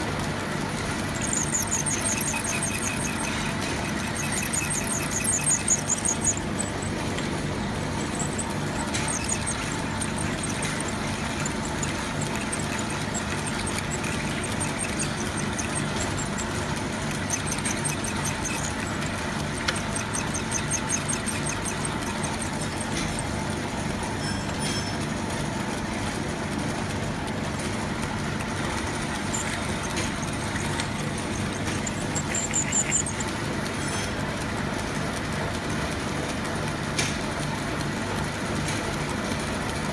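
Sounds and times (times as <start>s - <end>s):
lathe cutting metal: 0.9s - 23.4s, 28.5s - 33.9s
high-pitched tool squeal: 1.1s - 7.2s, 7.8s - 23.3s, 28.7s - 34.1s.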